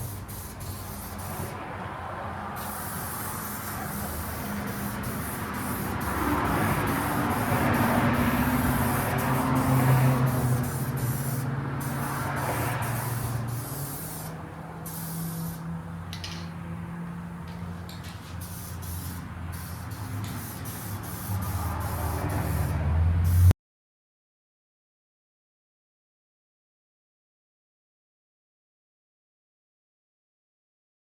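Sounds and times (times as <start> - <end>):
spray paint hissing: 0.0 - 1.8, 2.4 - 16.5, 17.8 - 23.5.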